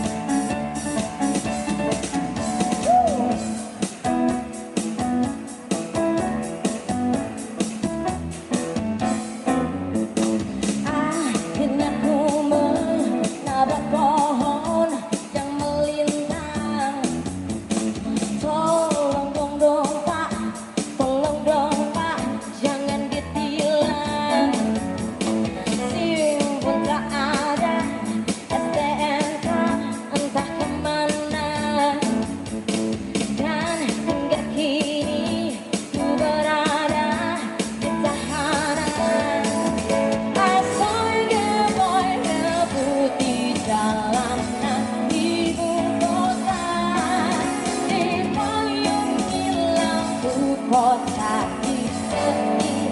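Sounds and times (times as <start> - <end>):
person singing: 0.0 - 7.8, 10.8 - 17.3, 33.4 - 52.9
pop-rock band playing: 0.0 - 52.9.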